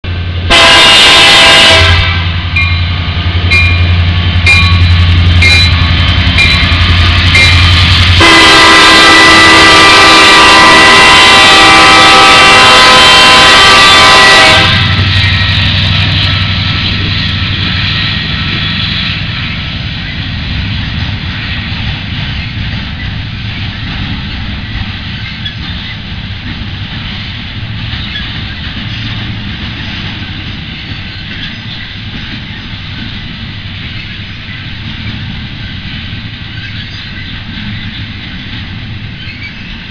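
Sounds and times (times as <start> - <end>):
locomotive engine rumble: 0.0 - 39.9
locomotive air horn blasts: 0.5 - 2.4, 8.1 - 15.1.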